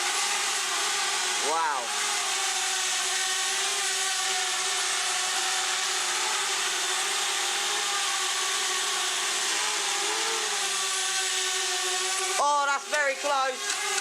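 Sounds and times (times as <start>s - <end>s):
hairdryer blowing air: 0.0s - 14.0s
drone propellers whining: 1.2s - 6.7s.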